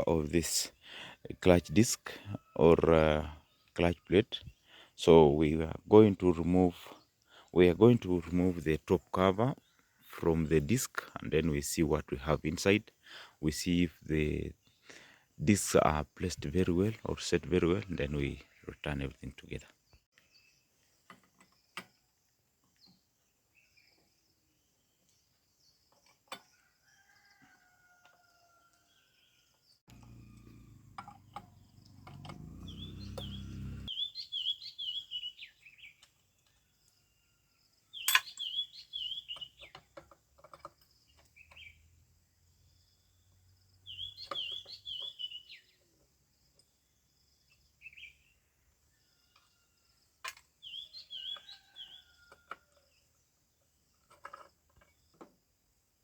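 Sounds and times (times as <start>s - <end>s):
small birds chirping: 27.1s - 40.0s, 40.7s - 49.6s, 50.5s - 53.8s.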